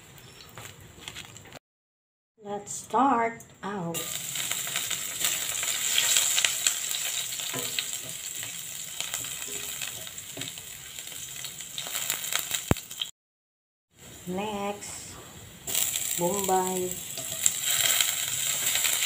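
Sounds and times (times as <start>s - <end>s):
ingredients sizzling in hot oil: 4.0s - 13.1s, 14.0s - 19.0s
spatula stirring in pan: 17.1s - 19.0s.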